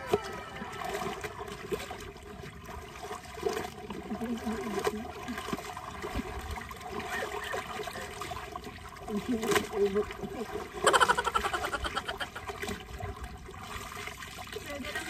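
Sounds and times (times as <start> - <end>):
river water sloshing: 0.0 - 15.0
small splashes: 0.0 - 15.0.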